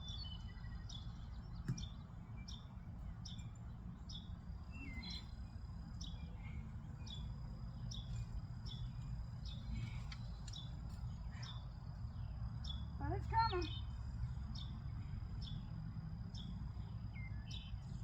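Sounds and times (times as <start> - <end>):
bird chirping: 0.0 - 18.0
steady low rumble: 0.0 - 18.0.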